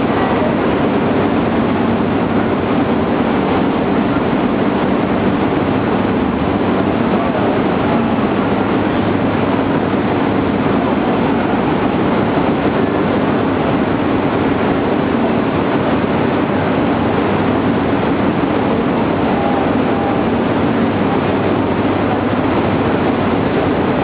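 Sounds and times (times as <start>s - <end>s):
high-speed train rushing: 0.0s - 24.0s
low hum: 0.0s - 24.0s.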